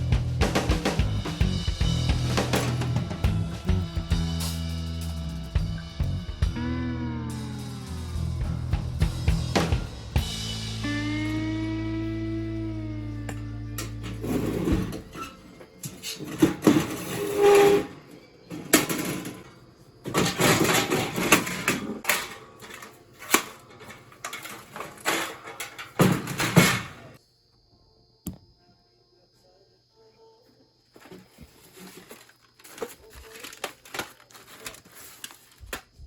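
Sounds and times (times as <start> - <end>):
background music: 0.0 - 17.6
rustling knocking and clattering: 18.6 - 27.0.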